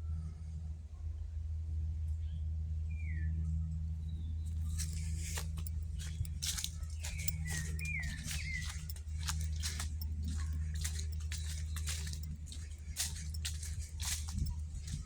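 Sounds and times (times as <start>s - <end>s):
steady low hum: 4.0s - 15.0s
birds chirping: 4.5s - 15.0s
crackling clicks: 4.5s - 15.0s.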